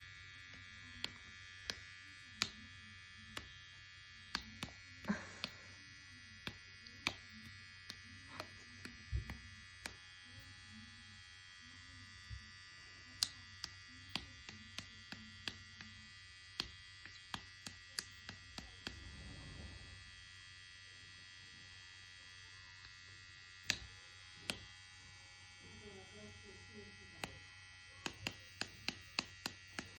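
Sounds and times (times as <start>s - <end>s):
pet hair trimmer buzzing: 0.0s - 30.0s
sharp clicks and taps: 1.0s - 2.6s, 4.3s - 5.6s, 6.4s - 10.0s, 13.2s - 19.0s, 23.6s - 24.7s, 28.0s - 30.0s.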